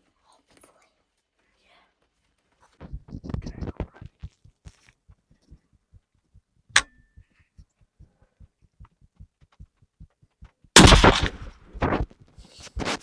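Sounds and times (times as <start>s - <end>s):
heartbeat thumps: 2.8s - 12.2s
sharp click: 10.8s - 11.5s.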